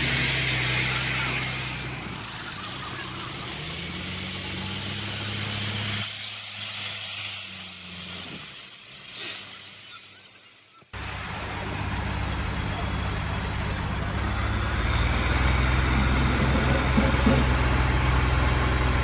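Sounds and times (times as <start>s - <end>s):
diesel engine running and revving: 0.0s - 9.2s, 11.0s - 19.0s
brief hiss: 6.3s - 10.3s.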